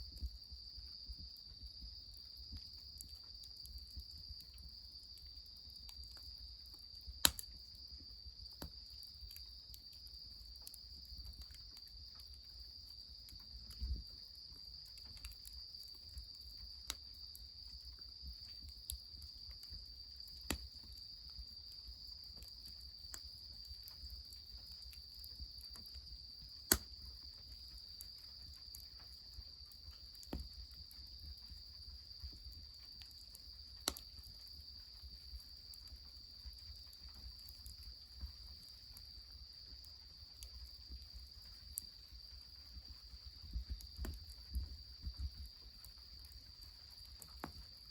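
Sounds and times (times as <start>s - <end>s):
crickets trilling: 0.0s - 47.9s
wood fire crackling: 0.2s - 47.9s.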